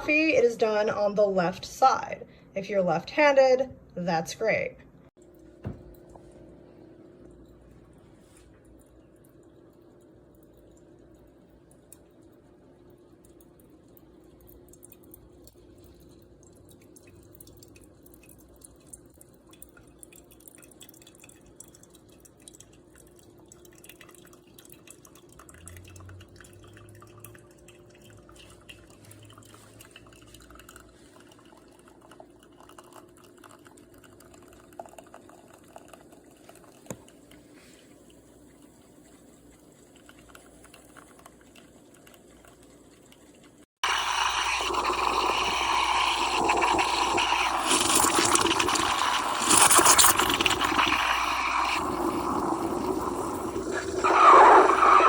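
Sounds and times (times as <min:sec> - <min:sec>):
liquid crackling and dripping: 0:05.1 - 0:55.0
espresso machine humming: 0:43.8 - 0:54.8.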